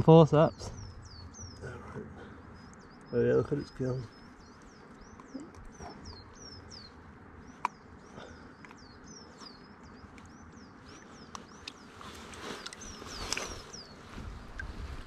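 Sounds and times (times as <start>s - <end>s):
songbird chirping: 0.0s - 15.0s
running river water: 10.8s - 15.0s.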